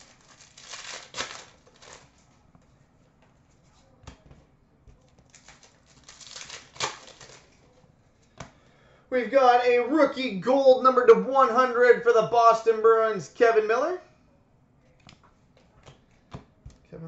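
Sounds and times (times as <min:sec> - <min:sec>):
cards and wrappers rustling: 0:00.0 - 0:02.4, 0:05.0 - 0:08.4.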